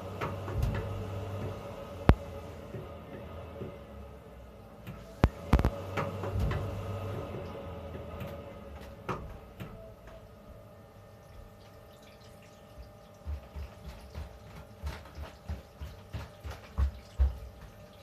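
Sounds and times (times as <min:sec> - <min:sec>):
water heater thumping: 0:00.0 - 0:03.8, 0:12.8 - 0:18.0
hum: 0:00.0 - 0:12.0.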